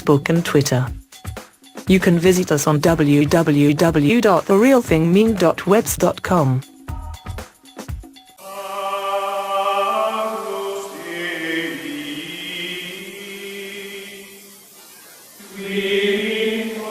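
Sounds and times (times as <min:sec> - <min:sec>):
choir singing sustained notes: 0:08.4 - 0:16.9.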